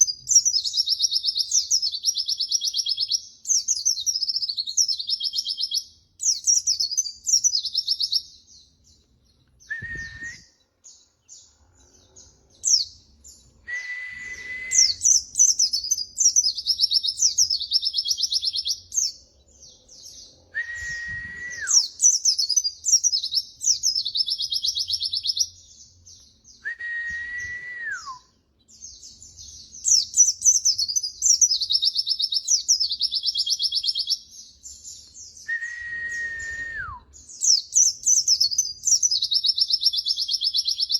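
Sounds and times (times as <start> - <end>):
bird long level whistle: 9.6 - 10.6, 13.6 - 18.8, 20.5 - 25.5, 26.6 - 28.4, 35.4 - 37.2
bird high twittering: 9.6 - 25.6.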